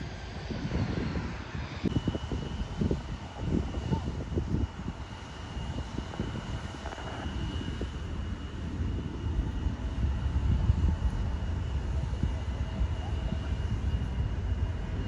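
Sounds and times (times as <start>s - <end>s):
airplane engines rumbling: 0.0s - 15.0s.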